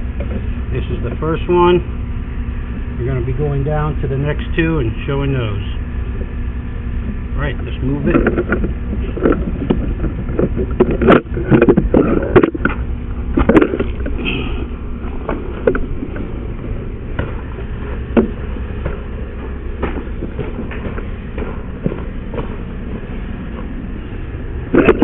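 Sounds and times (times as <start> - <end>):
steady low rumble: 0.0 - 25.0
equipment knocking and clattering: 8.0 - 14.2, 15.0 - 23.8.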